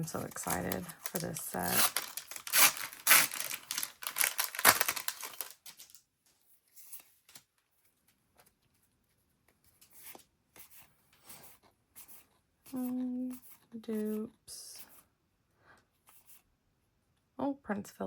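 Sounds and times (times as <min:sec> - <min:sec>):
cards being handled: 0:00.1 - 0:06.0
foil wrapper ripping and crinkling: 0:00.1 - 0:06.0.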